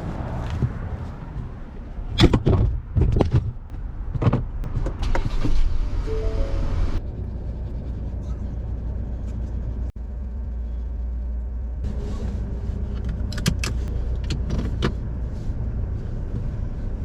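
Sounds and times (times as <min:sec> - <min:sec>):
vehicle engine and road rumble: 0:00.0 - 0:17.0.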